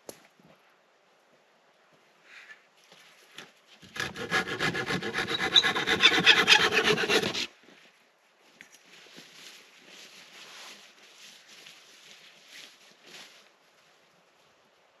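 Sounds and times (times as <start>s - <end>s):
hand saw cutting wood: 3.8s - 7.5s.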